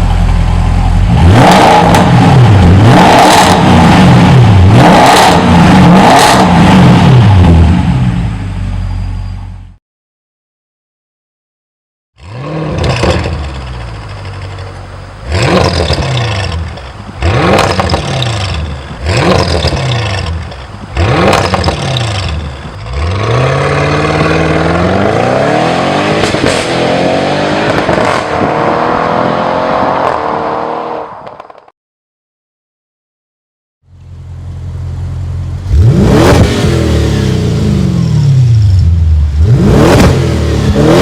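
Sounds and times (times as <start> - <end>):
car engine revving: 0.9 - 8.2, 12.2 - 31.2, 34.8 - 41.0
car engine accelerating: 12.3 - 31.2, 34.3 - 41.0.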